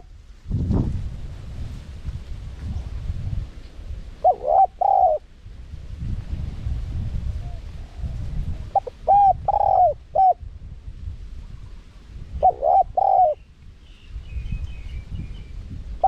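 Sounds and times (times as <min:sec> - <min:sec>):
dove cooing: 0:04.2 - 0:05.3, 0:07.4 - 0:10.4, 0:12.4 - 0:13.4.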